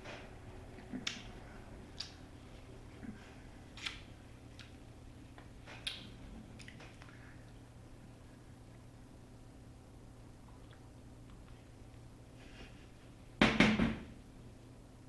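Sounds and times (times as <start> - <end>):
low steady hum: 0.0 - 15.0
mouth clicks and lip smacks: 0.8 - 1.3, 1.9 - 2.2, 3.8 - 4.8, 5.7 - 7.2, 10.5 - 11.6.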